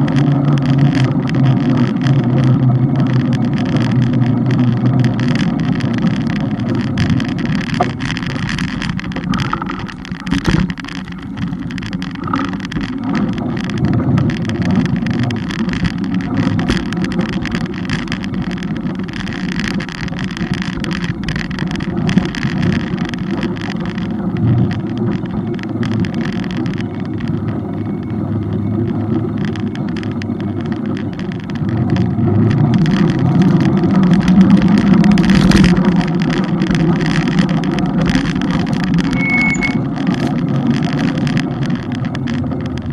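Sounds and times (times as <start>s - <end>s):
rattling clicks: 0.0s - 27.6s
road noise rumble: 0.0s - 42.9s.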